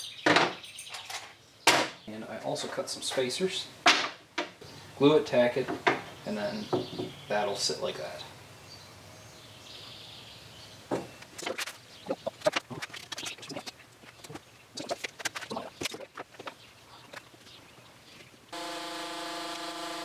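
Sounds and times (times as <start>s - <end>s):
wooden parts and tools knocking: 0.2s - 2.0s, 3.8s - 4.6s, 5.6s - 7.2s, 10.9s - 13.4s.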